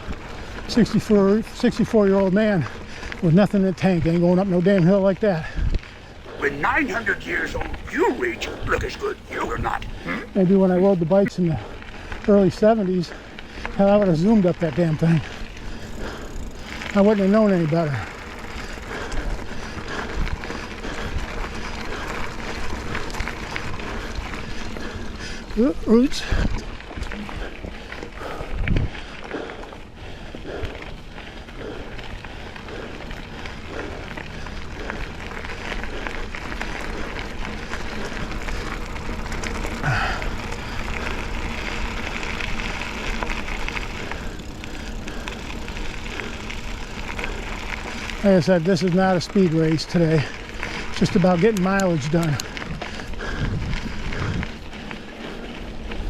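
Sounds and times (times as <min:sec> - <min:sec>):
bike clicks and rattles: 0:00.0 - 0:06.3, 0:11.7 - 0:56.0
bike tyres rolling on dirt: 0:00.0 - 0:56.0.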